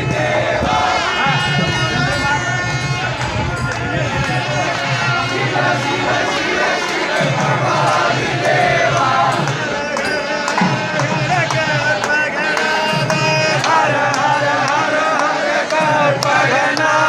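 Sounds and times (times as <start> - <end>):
drum strokes: 0.0 - 17.0
wavering melody: 5.3 - 14.1.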